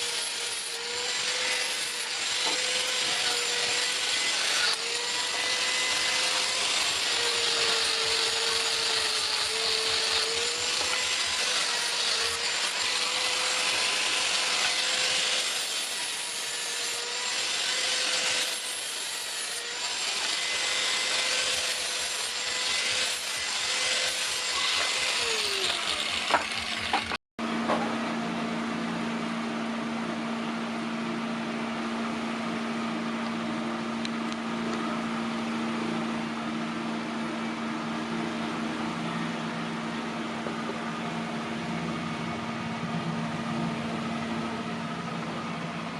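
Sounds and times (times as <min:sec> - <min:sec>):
harsh grinding noise: 0:00.0 - 0:27.2
power tool motor whine: 0:00.0 - 0:27.2
motor spinning down: 0:23.6 - 0:27.2.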